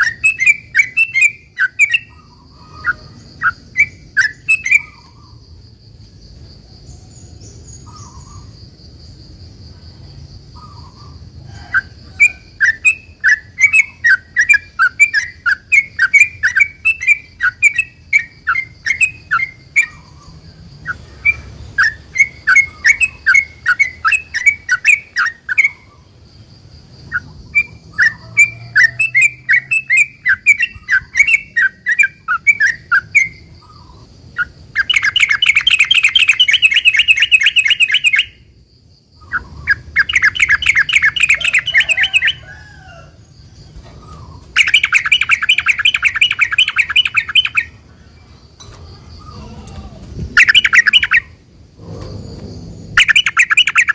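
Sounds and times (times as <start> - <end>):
bird singing chattering notes: 0.0 - 5.4, 12.2 - 26.0, 27.1 - 38.4, 39.2 - 42.4, 44.0 - 47.8, 50.3 - 51.4, 52.9 - 53.9.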